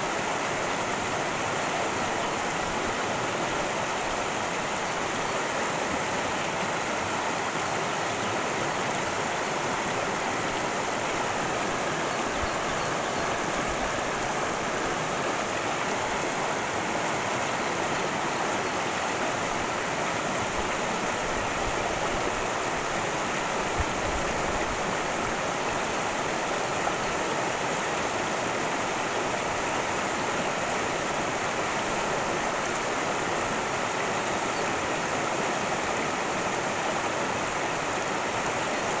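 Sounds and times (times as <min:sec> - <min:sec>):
stream rushing over rocks: 0:00.0 - 0:39.0.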